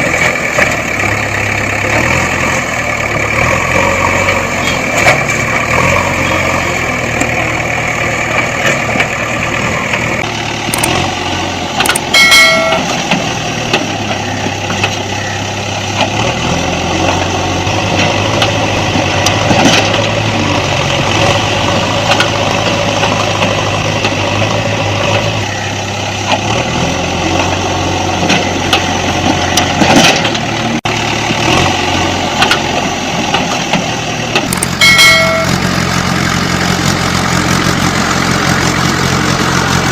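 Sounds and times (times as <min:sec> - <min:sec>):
vehicle engine running: 0:00.0 - 0:39.9
short beep: 0:34.8 - 0:35.6.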